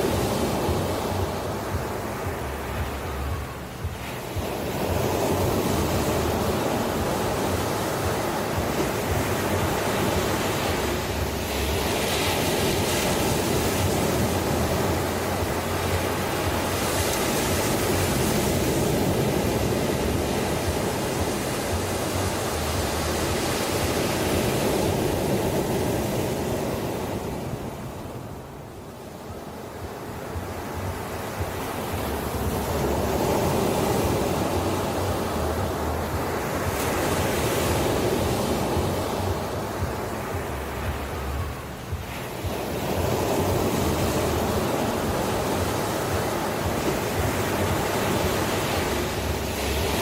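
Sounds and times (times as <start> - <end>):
ocean surf washing on shore: 0.0 - 50.0.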